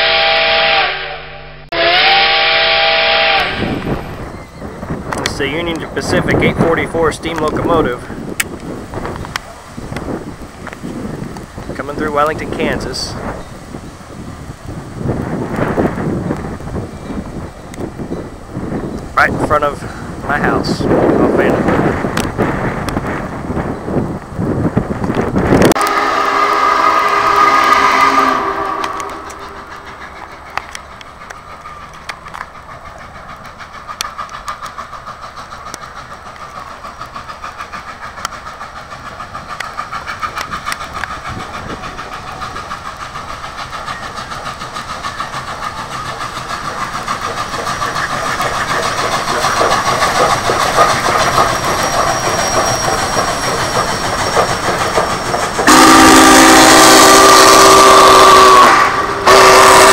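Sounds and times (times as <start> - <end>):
steam whistle chord: 0.0 - 4.2, 25.8 - 29.8, 55.7 - 59.9
train wheels clicking over rail joints: 3.3 - 59.9.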